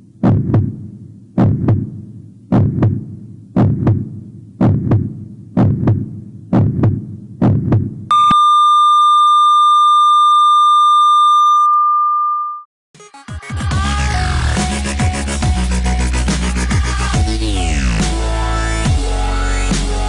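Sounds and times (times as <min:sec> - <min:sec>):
heartbeat double thumps: 0:00.2 - 0:08.1
high electronic flatline tone: 0:08.1 - 0:12.6.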